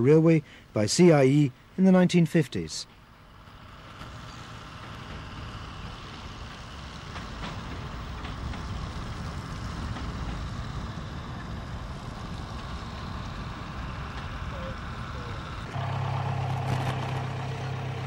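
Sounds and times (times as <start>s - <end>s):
train diesel and wheel rumble: 0.0s - 18.0s.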